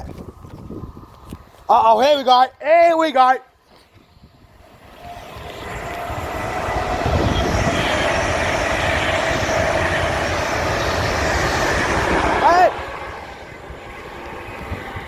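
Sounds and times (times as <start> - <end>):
fast train rushing past: 4.1 - 15.0.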